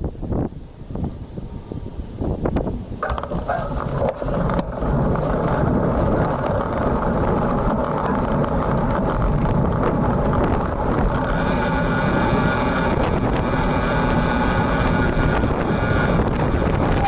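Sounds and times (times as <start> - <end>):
wind buffeting microphone: 0.0 - 17.0
road noise: 0.6 - 17.0.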